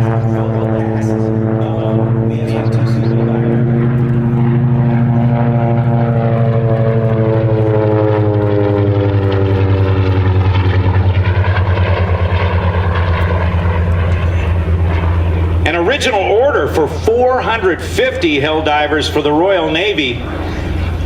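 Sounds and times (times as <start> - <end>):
propeller plane passing: 0.0 - 21.0.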